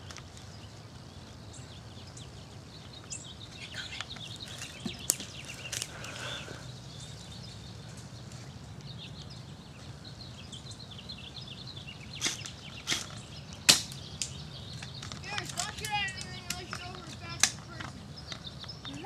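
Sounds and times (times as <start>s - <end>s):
faint bird chirps: 0.0s - 19.0s
steady outdoor noise: 0.0s - 19.0s
sharp cracks: 12.1s - 19.0s.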